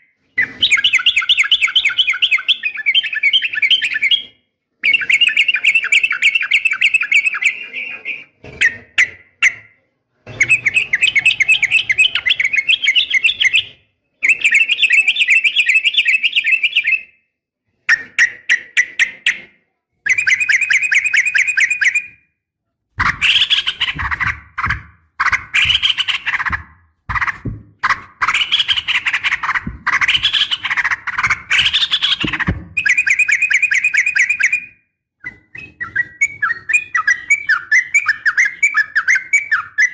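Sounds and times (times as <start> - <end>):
bird chattering trills: 23.0 - 34.7.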